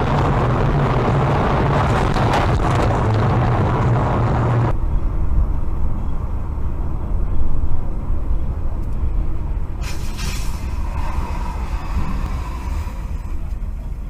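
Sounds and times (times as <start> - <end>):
vehicle road and engine rumble: 0.0 - 14.0
brief hiss: 9.8 - 13.2.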